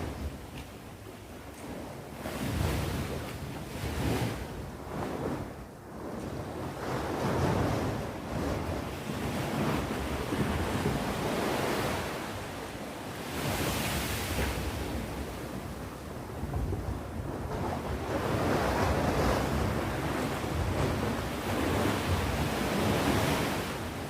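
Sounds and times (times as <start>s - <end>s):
sea waves breaking on shore: 0.0s - 24.0s
wind noise on microphone: 0.0s - 24.0s.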